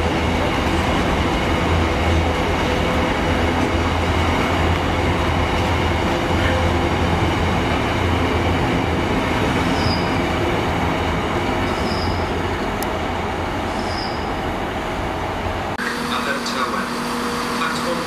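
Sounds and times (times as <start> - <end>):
train wheels rumbling on rail: 0.0 - 18.0
high wheel squeals: 9.5 - 10.3, 11.6 - 12.4, 13.7 - 14.4.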